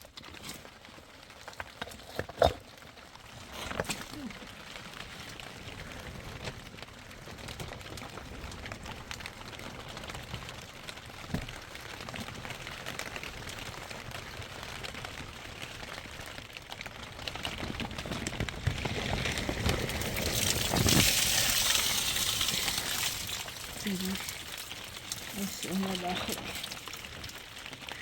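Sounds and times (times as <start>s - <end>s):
rain pattering on a tent: 0.0s - 28.0s
rush of water: 18.0s - 28.0s.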